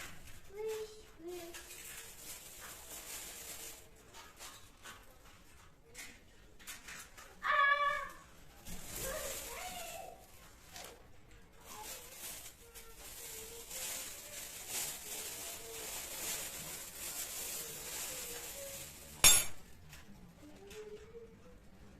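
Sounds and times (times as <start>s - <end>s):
kitchen rustling and knocks: 19.1s - 19.7s
sharp glass clink: 19.2s - 19.6s.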